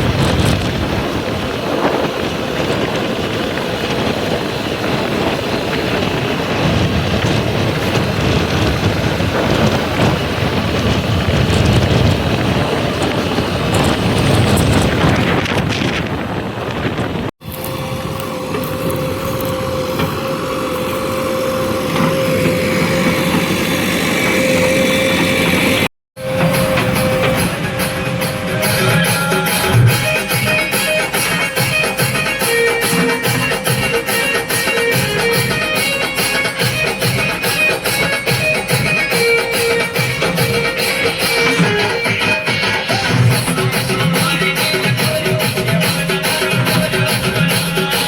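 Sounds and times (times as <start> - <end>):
constant whine: 0.0 - 48.0
diesel engine rumbling: 0.0 - 48.0
wind buffeting microphone: 0.0 - 48.0.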